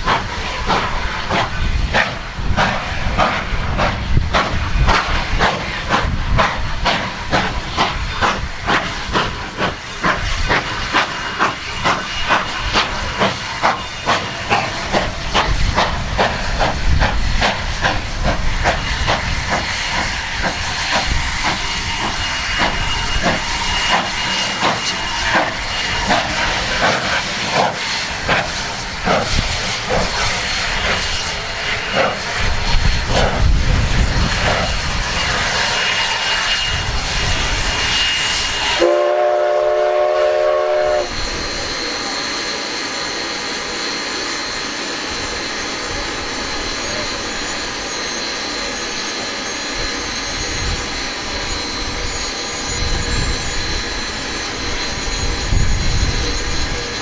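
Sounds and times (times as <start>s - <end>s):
steam hiss: 0.0s - 57.0s
steam locomotive exhaust chuffs: 0.0s - 57.0s.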